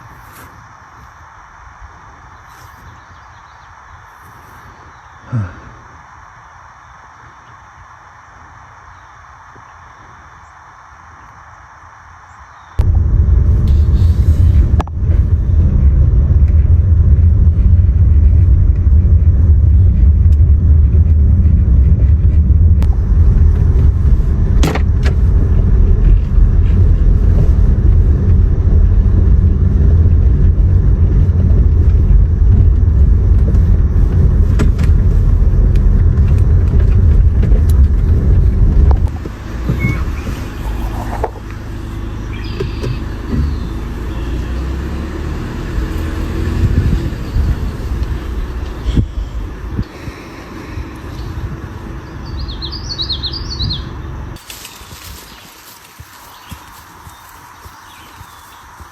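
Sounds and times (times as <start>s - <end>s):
loud low rumble: 12.8s - 58.9s.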